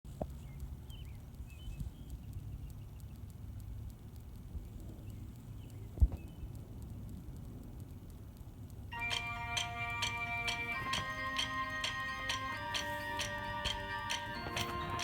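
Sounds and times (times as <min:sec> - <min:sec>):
low background rumble: 0:00.1 - 0:15.0
faint bird-like chirps: 0:00.3 - 0:03.3.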